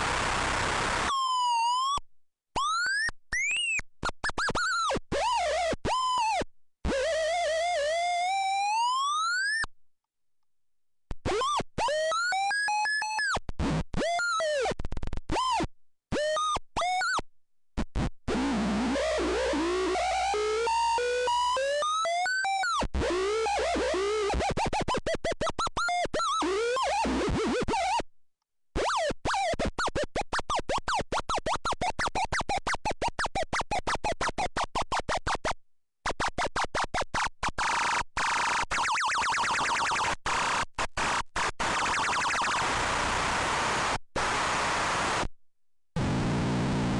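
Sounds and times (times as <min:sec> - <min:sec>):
stuttering synthesizer tones: 0:37.6 - 0:43.4.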